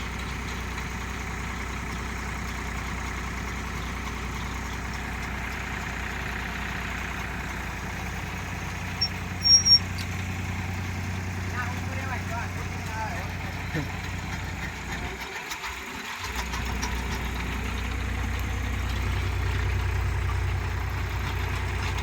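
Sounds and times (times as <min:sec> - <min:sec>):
tractor engine running: 0:00.0 - 0:22.0
sharp squeaky sounds: 0:08.8 - 0:10.3.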